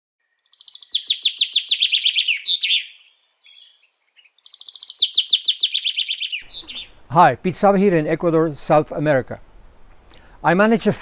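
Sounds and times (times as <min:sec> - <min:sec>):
songbird singing falling notes: 0:00.3 - 0:07.0.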